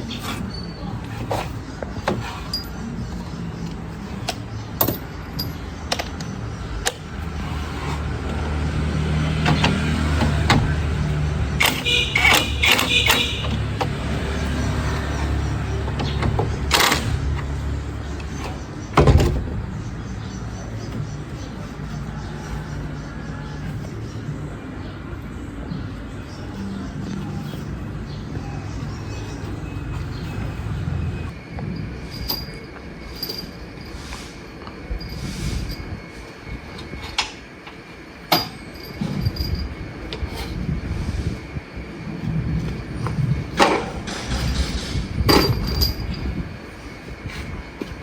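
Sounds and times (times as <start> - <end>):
metal clanking and scraping: 0.0 - 8.5, 38.2 - 41.4, 42.6 - 48.0.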